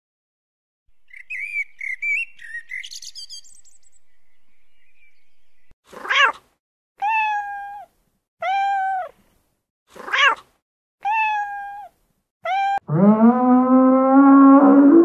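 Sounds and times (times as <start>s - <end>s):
small bird chirping: 1.0s - 5.7s.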